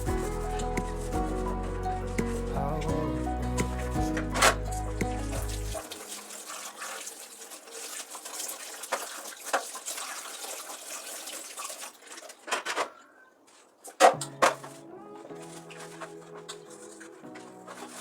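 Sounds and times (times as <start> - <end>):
water running from tap: 5.3 - 12.3.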